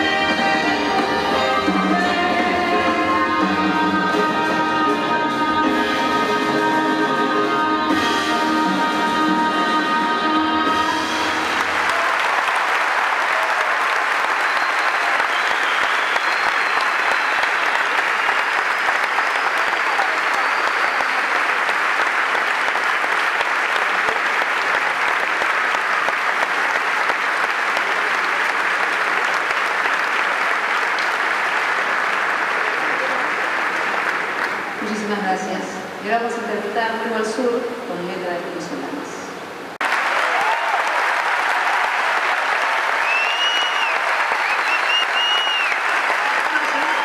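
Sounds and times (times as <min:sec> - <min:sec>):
band playing: 0:00.0 - 0:12.0
audience applauding and cheering: 0:10.9 - 0:34.8, 0:39.8 - 0:47.0
whistles from crowd: 0:13.8 - 0:21.6, 0:42.8 - 0:47.0.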